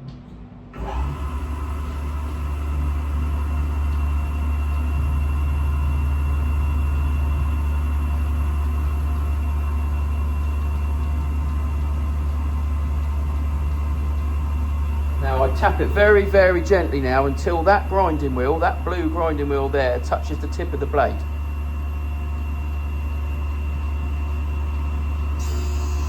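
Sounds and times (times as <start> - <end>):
grinding wheel motor hum: 0.8 - 26.0
high whining tones: 14.2 - 22.4, 25.3 - 26.0.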